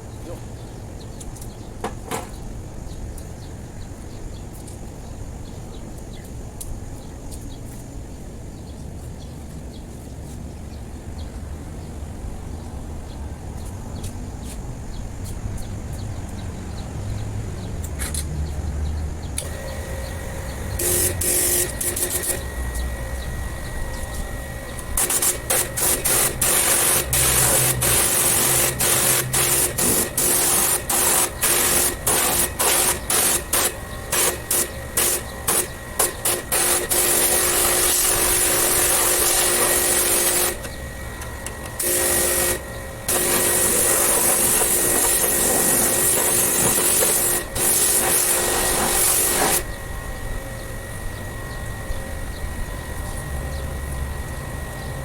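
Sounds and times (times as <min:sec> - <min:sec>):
faint machine hum: 0:00.0 - 0:55.0
pressure washer spray hissing: 0:19.4 - 0:40.8, 0:41.7 - 0:49.7.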